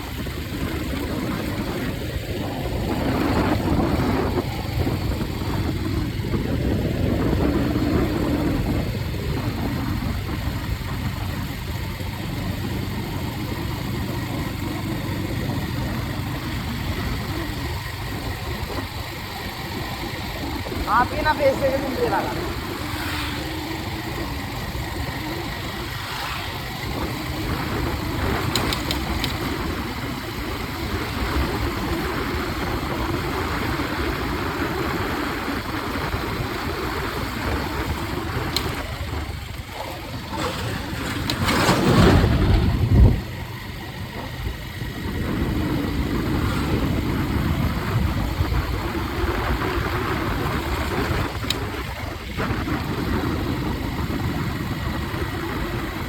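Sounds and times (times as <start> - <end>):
vehicle engine running: 0.0 - 56.0
wash of noise: 25.6 - 27.4.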